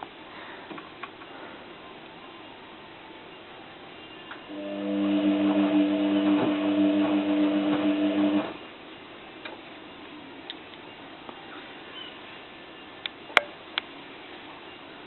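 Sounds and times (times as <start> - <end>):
washing machine drum motor hum: 4.5 - 8.7.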